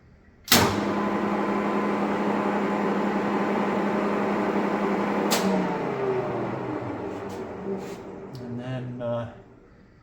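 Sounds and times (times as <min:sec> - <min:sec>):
machine winding down: 0:00.5 - 0:09.7
drill press humming: 0:00.5 - 0:09.8.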